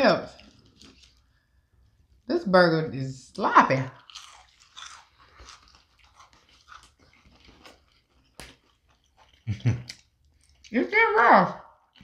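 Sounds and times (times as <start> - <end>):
small crunches: 0.4 - 1.4, 4.0 - 10.7
close chewing of burger: 4.0 - 10.7.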